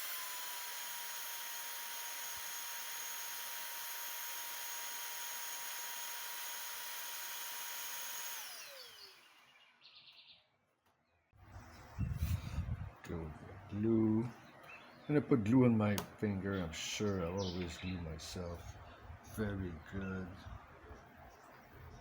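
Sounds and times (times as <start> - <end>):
electric motor whining: 0.0 - 9.6.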